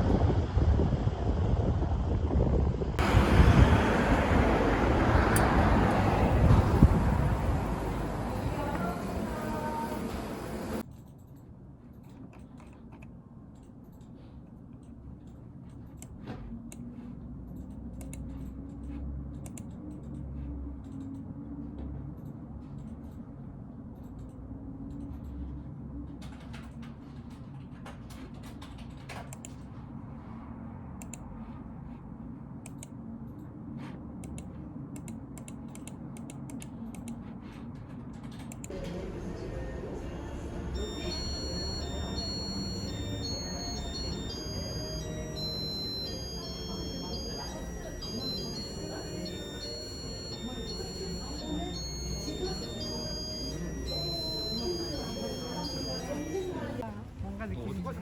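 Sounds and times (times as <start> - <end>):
music: 38.7 - 56.8.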